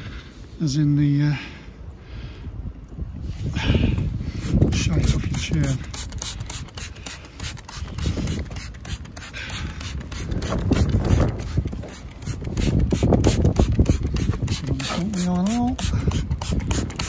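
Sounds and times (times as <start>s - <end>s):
wind buffeting microphone: 1.8s - 17.0s
microphone handling noise: 3.0s - 17.0s.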